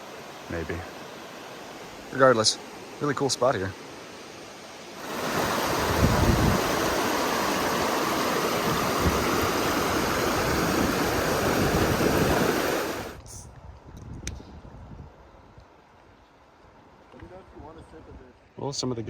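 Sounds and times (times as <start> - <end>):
water rushing over rocks: 0.0 - 13.2.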